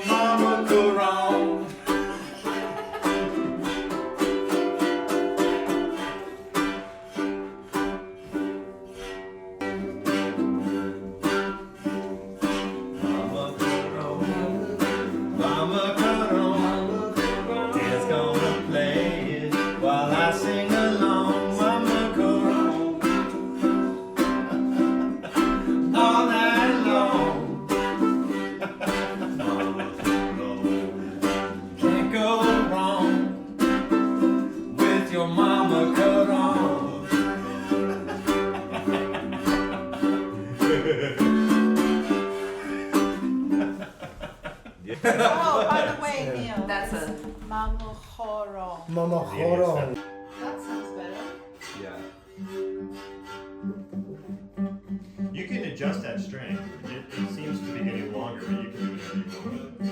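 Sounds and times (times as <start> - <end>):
man singing: 0.0 - 6.1, 12.1 - 43.3, 55.4 - 59.9
one-string fiddle playing: 0.0 - 47.8, 49.1 - 59.9.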